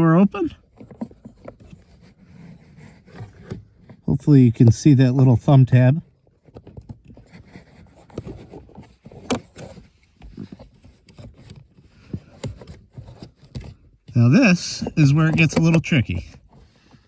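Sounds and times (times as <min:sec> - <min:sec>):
plastic clicks and scrapes: 0:00.6 - 0:04.1, 0:06.1 - 0:14.2, 0:14.8 - 0:17.0.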